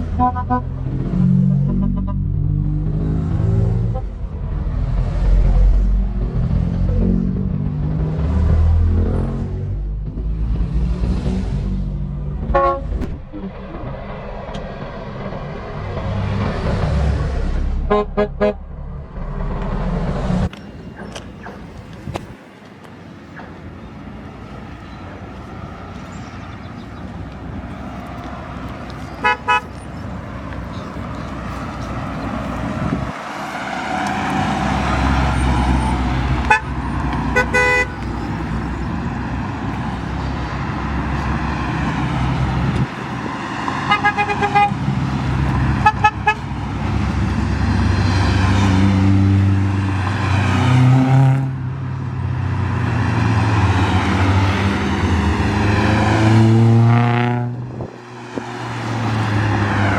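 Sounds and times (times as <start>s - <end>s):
car horn toots: 0.0s - 0.8s, 12.4s - 13.0s, 17.8s - 18.6s, 29.2s - 29.7s, 36.4s - 38.0s, 43.9s - 44.8s, 45.8s - 46.5s
car engines revving: 0.0s - 59.9s.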